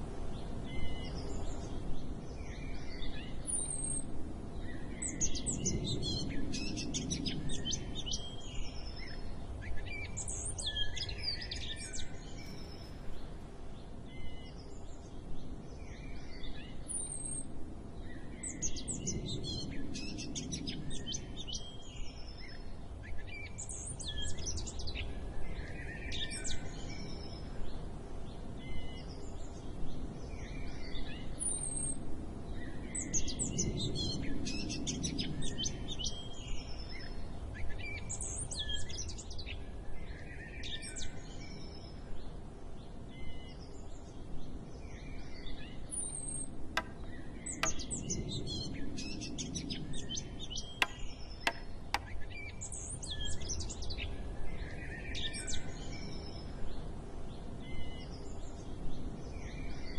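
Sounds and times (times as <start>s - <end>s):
low background noise: 0.0s - 59.9s
birds chirping and trilling: 0.7s - 27.5s, 43.1s - 56.6s.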